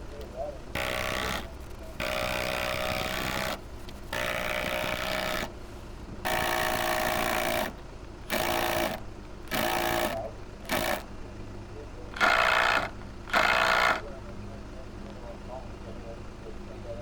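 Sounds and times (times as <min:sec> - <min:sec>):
impact driver driving screws: 0:00.8 - 0:05.5, 0:06.3 - 0:11.1, 0:12.2 - 0:14.0.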